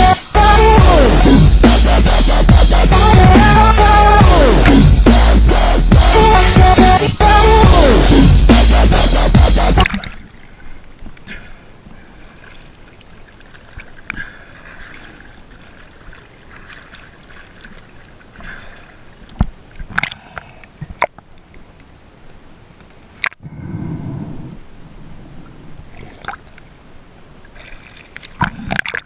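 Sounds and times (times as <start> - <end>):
loud electronic music: 0.0 - 9.9
faint water ambience: 8.3 - 29.0.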